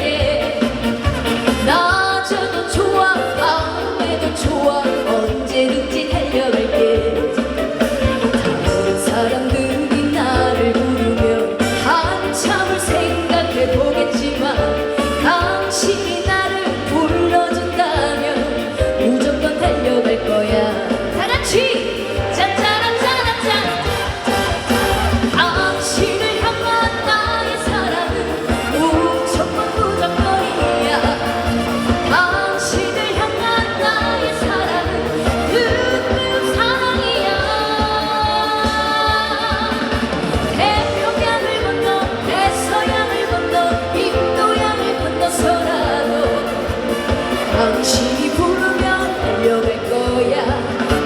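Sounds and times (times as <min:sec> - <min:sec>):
dance beat backing track: 0:00.0 - 0:40.0
woman singing: 0:00.0 - 0:51.0.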